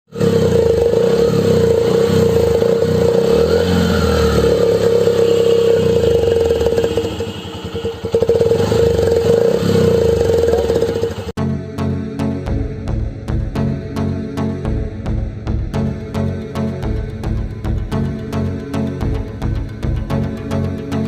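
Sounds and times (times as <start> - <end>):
motorcycle engine whining: 0.1 - 11.4.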